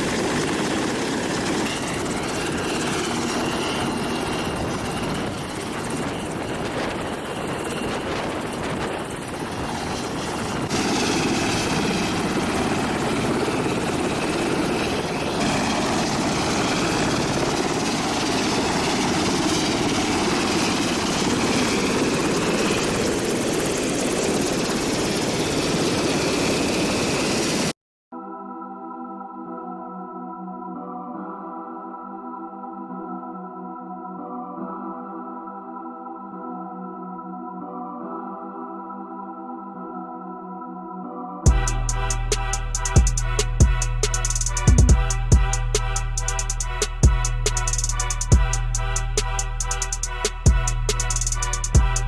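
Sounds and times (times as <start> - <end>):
helicopter turbine and rotor noise: 0.0 - 27.7, 41.5 - 52.0.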